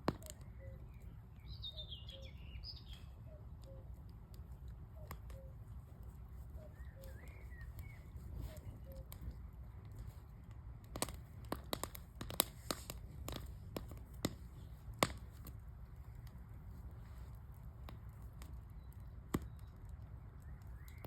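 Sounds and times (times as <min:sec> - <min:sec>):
wood fire crackling and popping: 0:00.0 - 0:01.5, 0:03.2 - 0:21.0.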